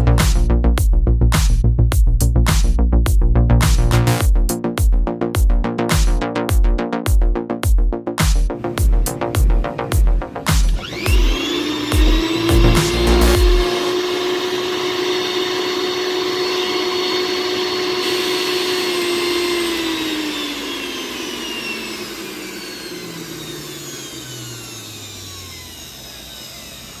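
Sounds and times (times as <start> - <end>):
mixer grinder motor whining: 8.6 - 27.0.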